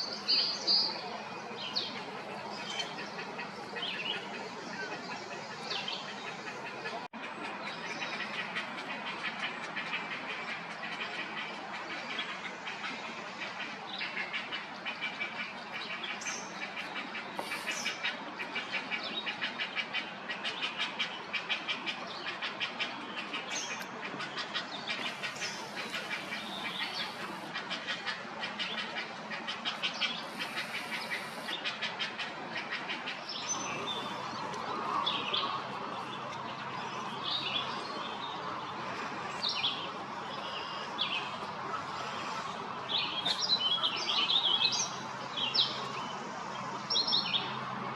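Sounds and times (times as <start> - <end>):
birds pulsing chatter: 0.0 - 11.3, 13.9 - 47.8
bird chirps and calls: 25.0 - 27.5, 29.8 - 31.6.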